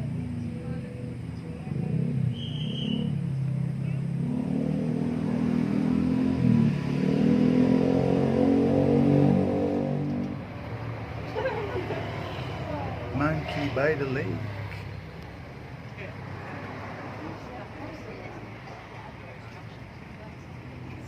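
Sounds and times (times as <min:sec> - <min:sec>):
vehicle engine accelerating: 0:00.0 - 0:21.0.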